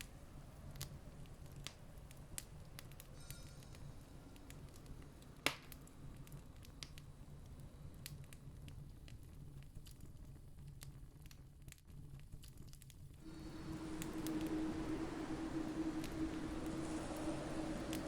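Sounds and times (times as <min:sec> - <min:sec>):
campfire wood crackling: 0:00.0 - 0:18.0
low rumble: 0:13.2 - 0:18.0.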